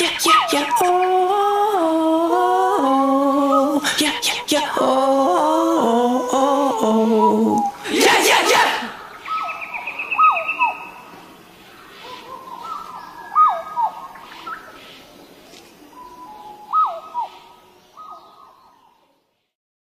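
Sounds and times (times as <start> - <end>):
birds calling: 0.0 - 2.0, 6.9 - 19.2
faint background hiss: 0.0 - 19.6.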